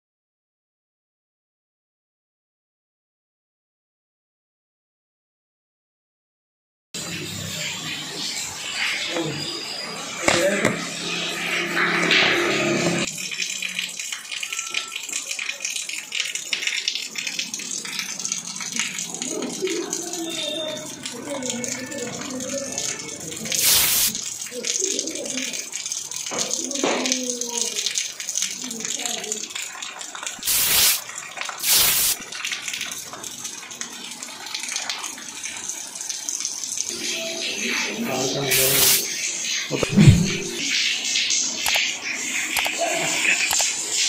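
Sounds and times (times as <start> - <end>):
rain pattering: 13.0 - 39.8
rain hiss: 23.2 - 25.8, 30.3 - 44.0
short pitched sound: 39.8 - 40.7.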